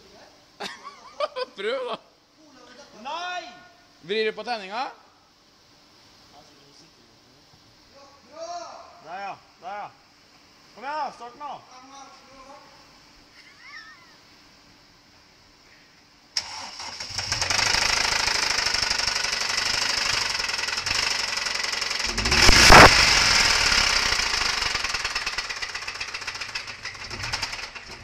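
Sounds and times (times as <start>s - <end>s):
engine running with harsh clatter: 17.0s - 28.0s.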